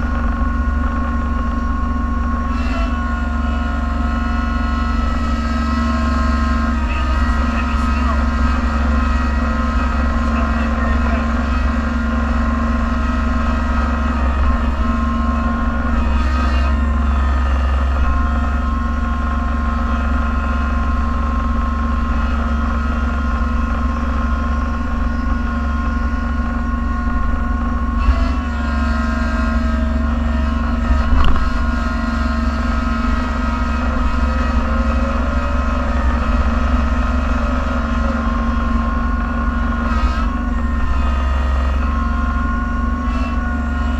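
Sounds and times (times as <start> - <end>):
snowplow engine running: 0.0 - 43.9.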